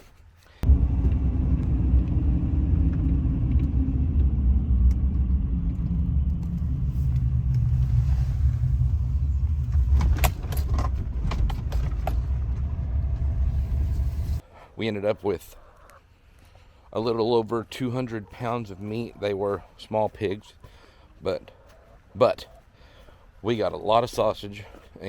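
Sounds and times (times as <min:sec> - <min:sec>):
sharp clicks and rattles: 0:00.6 - 0:14.3
vehicle rumbling: 0:00.6 - 0:14.4.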